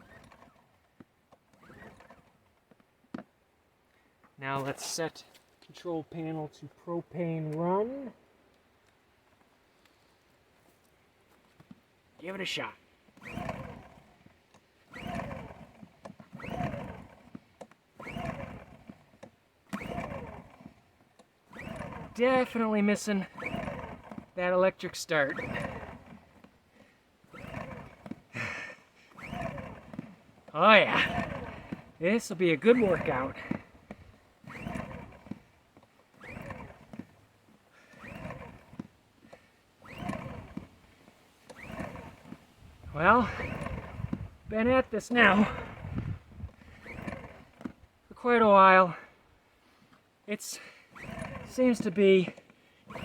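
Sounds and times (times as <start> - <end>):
engine cranking whir: 0.0 - 3.3, 11.6 - 53.0
generator recoil starter pulls: 0.0 - 8.1, 10.7 - 53.0
small clicks: 37.9 - 42.4.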